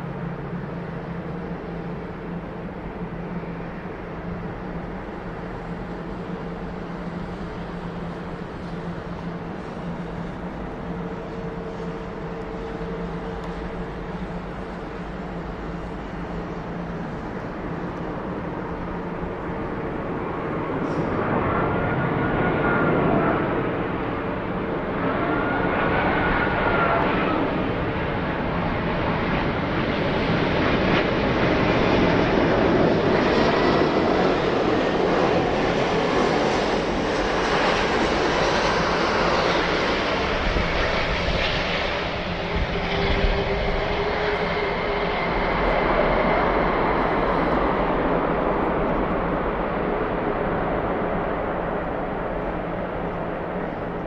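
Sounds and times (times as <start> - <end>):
jet airliner engines roaring: 0.0 - 54.0.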